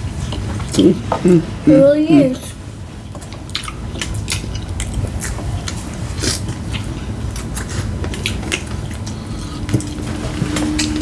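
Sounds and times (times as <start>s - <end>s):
steady low hum: 0.0s - 11.0s
chewing and biting food: 3.2s - 11.0s.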